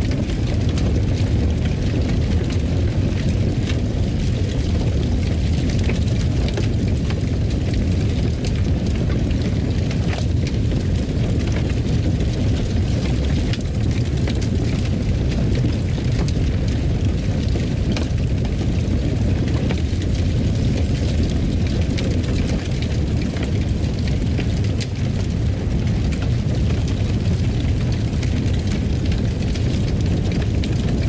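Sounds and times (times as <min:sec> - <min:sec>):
fire crackling and popping: 0:00.0 - 0:31.0
fire roaring: 0:00.0 - 0:31.0.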